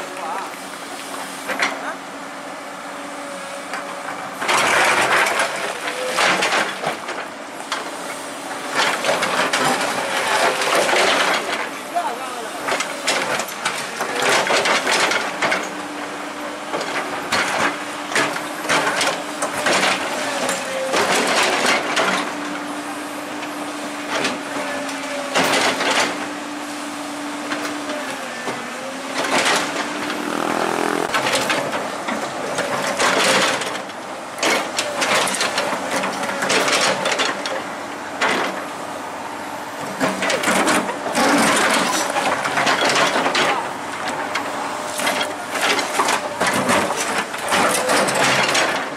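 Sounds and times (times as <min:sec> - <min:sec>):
diesel machinery running: 0:00.0 - 0:48.9
short bursts of noise: 0:30.0 - 0:31.6.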